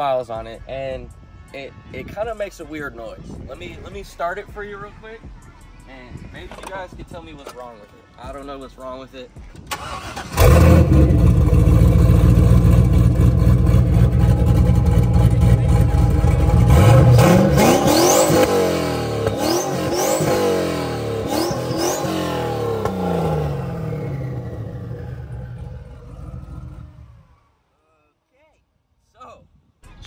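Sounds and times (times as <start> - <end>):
car engine idling and revving: 9.4 - 27.5.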